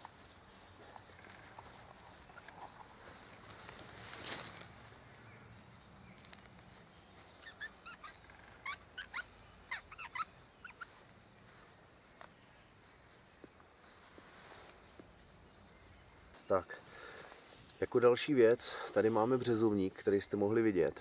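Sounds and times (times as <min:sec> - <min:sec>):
small bird chirping: 0:00.6 - 0:03.7, 0:05.2 - 0:14.0.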